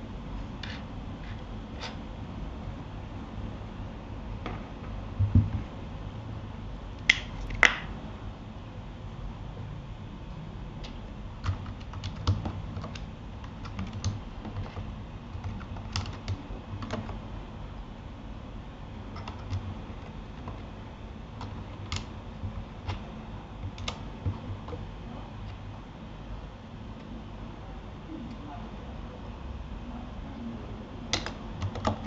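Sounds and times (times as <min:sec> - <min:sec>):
keyboard typing: 0:10.8 - 0:17.3, 0:19.1 - 0:20.8, 0:21.4 - 0:25.6, 0:31.1 - 0:32.0.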